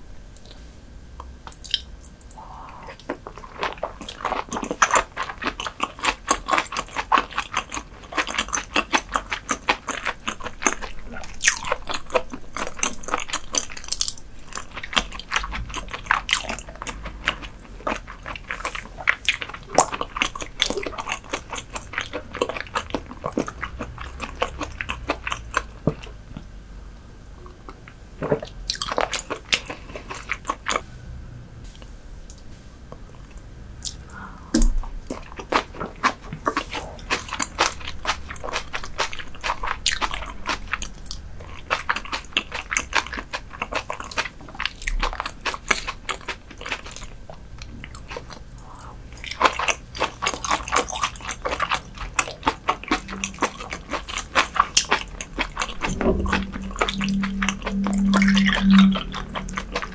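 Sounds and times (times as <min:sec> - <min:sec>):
chewing raw fish: 0:01.2 - 0:26.5, 0:27.4 - 0:30.8, 0:33.2 - 0:59.9
mouth clicks: 0:54.9 - 0:59.9.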